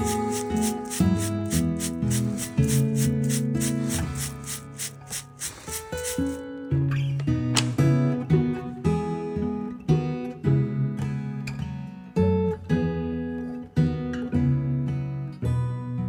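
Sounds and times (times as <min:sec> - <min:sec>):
strummed acoustic guitar: 0:00.0 - 0:04.2.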